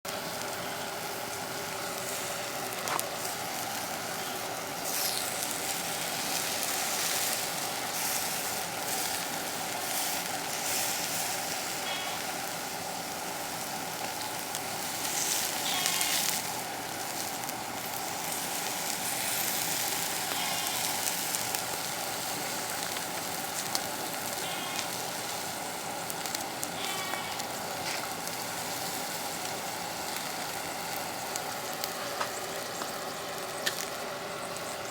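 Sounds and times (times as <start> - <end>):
food sizzling: 0.1 - 34.9.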